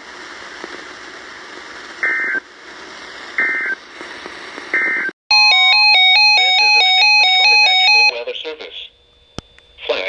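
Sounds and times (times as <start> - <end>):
radio static: 9.8 - 10.0.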